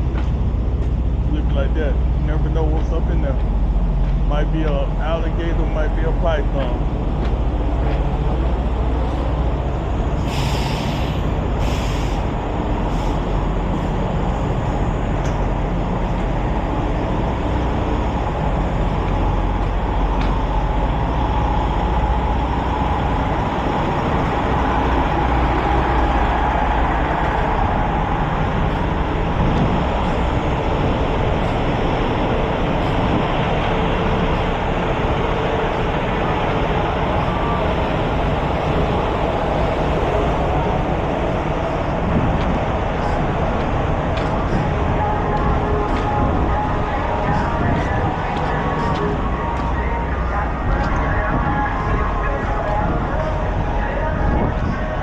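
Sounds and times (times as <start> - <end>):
rumble of road traffic: 0.0 - 55.0
air-brake hisses: 10.2 - 12.3.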